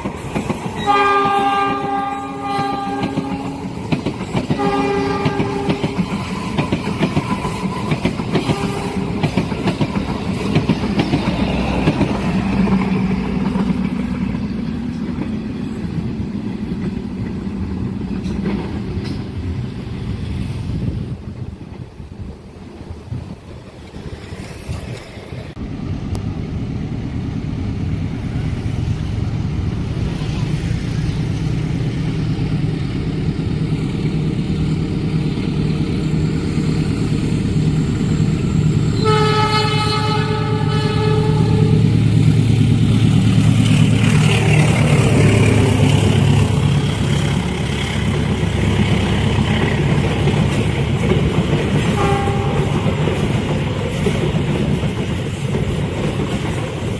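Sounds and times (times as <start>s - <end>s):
diesel locomotive engine rumbling: 0.0s - 56.9s
train rolling past: 0.0s - 56.9s
train horn: 0.8s - 3.9s, 4.5s - 6.7s, 8.3s - 9.3s, 38.9s - 42.0s, 51.8s - 53.0s.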